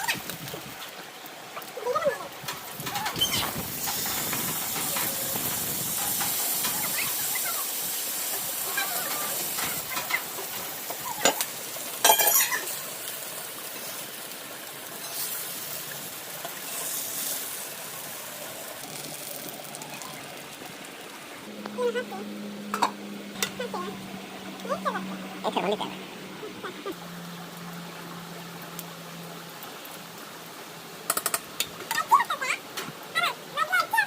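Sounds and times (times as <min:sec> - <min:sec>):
fish sizzling in hot oil: 0:00.0 - 0:34.0
utensil clicking against pan: 0:31.1 - 0:32.0.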